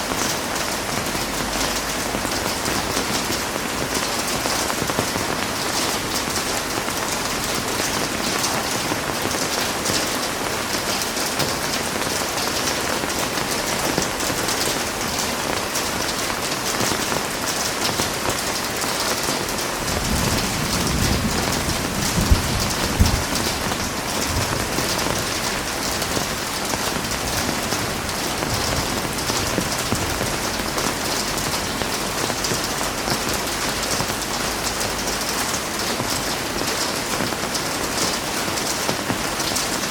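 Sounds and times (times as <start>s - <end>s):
heavy rain falling: 0.0s - 39.9s
thunder rumbling: 19.8s - 35.1s.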